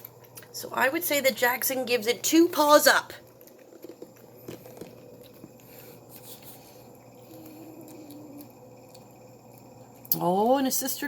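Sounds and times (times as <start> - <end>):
cat lapping and chewing: 3.1 - 10.2.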